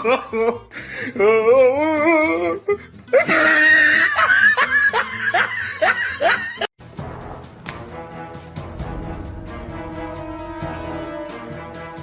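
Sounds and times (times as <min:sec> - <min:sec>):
person laughing: 0:00.0 - 0:06.7.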